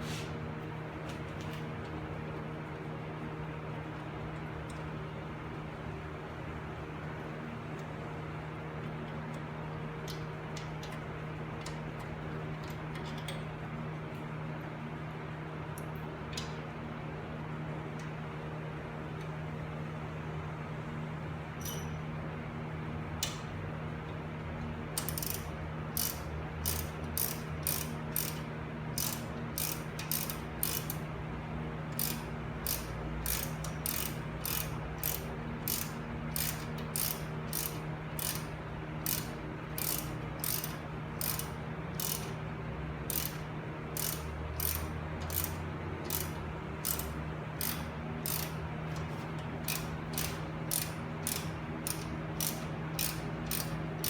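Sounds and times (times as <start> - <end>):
ratchet wrench clicking: 21.6 - 21.9, 25.0 - 31.0, 31.9 - 42.4, 43.1 - 54.0.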